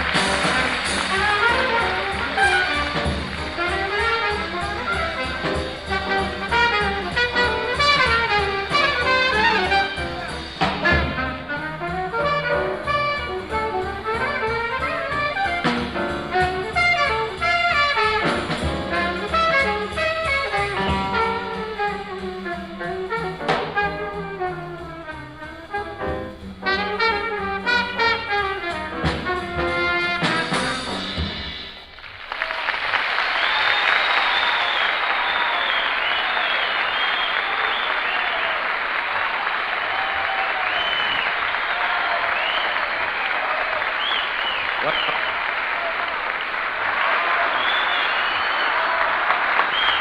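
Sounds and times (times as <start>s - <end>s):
audience applause: 0.0s - 11.5s, 31.8s - 50.0s
alto saxophone: 0.0s - 31.2s
bass: 0.0s - 31.9s
drums: 0.0s - 50.0s
trumpet: 0.0s - 50.0s.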